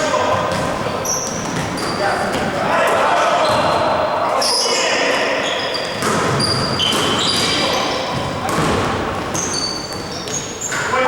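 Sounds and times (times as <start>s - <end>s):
players' voices: 0.0s - 11.0s
sneakers squeaking on court: 0.2s - 2.6s, 3.4s - 3.8s, 4.4s - 11.0s
basketball bouncing: 0.3s - 2.5s, 5.9s - 10.8s.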